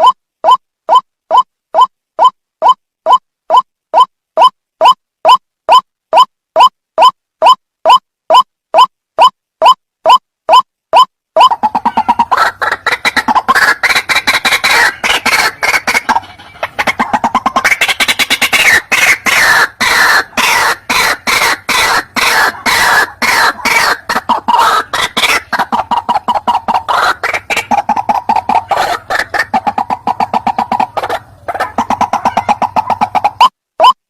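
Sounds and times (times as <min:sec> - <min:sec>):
waterhen calling harshly: 0:11.4 - 0:33.5.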